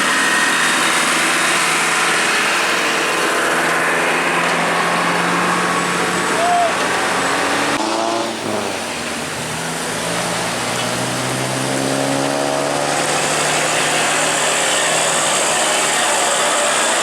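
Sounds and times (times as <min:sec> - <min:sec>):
road and tyre noise: 0:00.0 - 0:17.0
vehicle engine pulling: 0:00.0 - 0:17.0.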